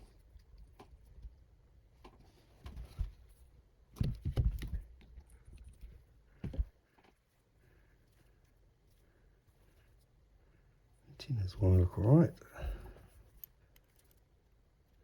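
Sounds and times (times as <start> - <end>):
small parts clicking and tapping: 13.2 - 14.3.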